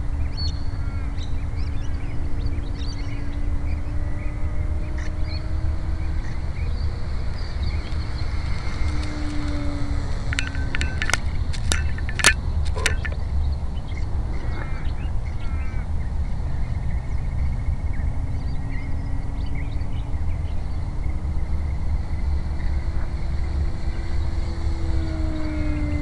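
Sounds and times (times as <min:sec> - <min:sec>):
birds chirping: 0:00.0 - 0:26.0
model plane motor and propeller: 0:00.0 - 0:26.0
wind on microphone: 0:00.0 - 0:26.0.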